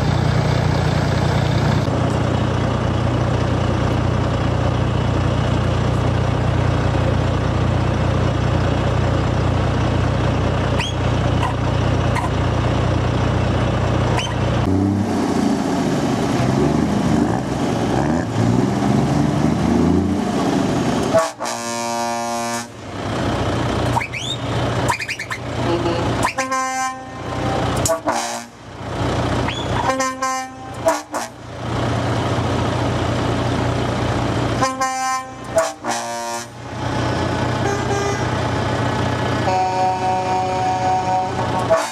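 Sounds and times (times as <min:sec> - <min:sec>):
lorries rolling past: 0:00.0 - 0:41.9
truck air horn blasts: 0:21.1 - 0:22.8, 0:24.0 - 0:28.7, 0:29.5 - 0:31.5, 0:34.6 - 0:36.6, 0:37.6 - 0:38.4, 0:39.4 - 0:41.9.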